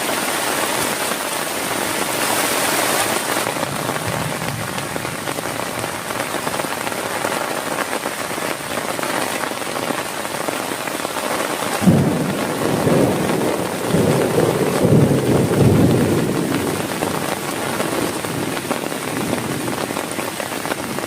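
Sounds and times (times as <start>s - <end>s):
heavy rain falling: 0.0s - 21.0s
thunder cracking and rolling: 3.4s - 6.7s, 11.8s - 20.1s.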